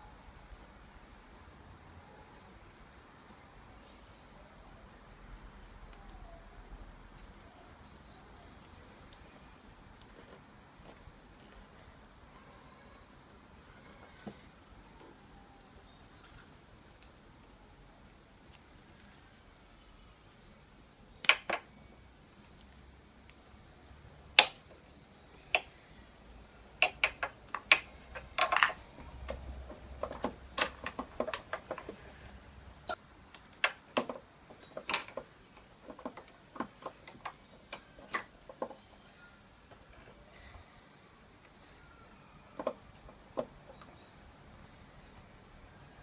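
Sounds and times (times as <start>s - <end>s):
small hard objects clicking: 21.2s - 23.4s, 24.3s - 24.8s, 26.8s - 32.3s.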